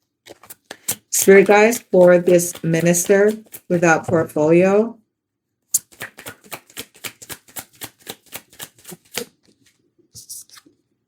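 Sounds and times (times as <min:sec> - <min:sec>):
cards being shuffled by hand: 0:00.3 - 0:04.0, 0:05.8 - 0:10.8.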